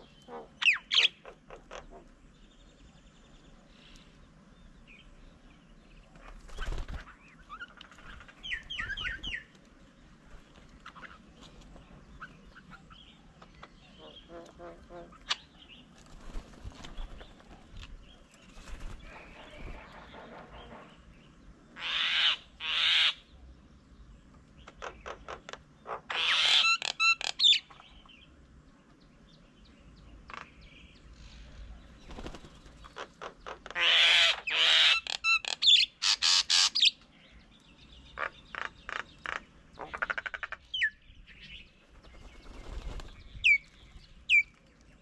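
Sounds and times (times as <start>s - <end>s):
birds squawking harshly: 0.0s - 2.2s, 21.8s - 23.3s, 24.7s - 27.7s, 32.1s - 37.0s, 38.1s - 41.0s
birds chirping: 0.0s - 45.0s.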